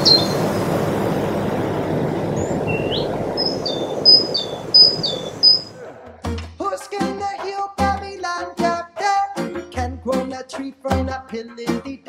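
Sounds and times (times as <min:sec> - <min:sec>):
low noise bed: 0:00.0 - 0:05.8
birds chirping: 0:00.0 - 0:05.9.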